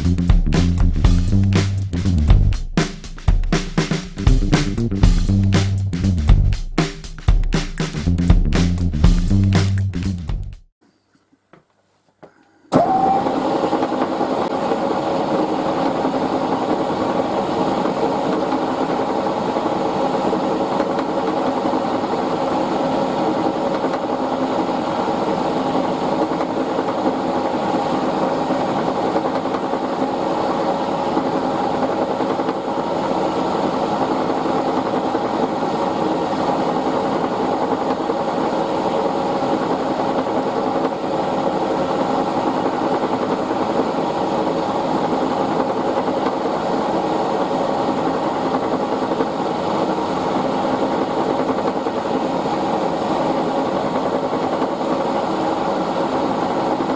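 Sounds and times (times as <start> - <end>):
milling machine humming and whining: 12.7 - 21.6.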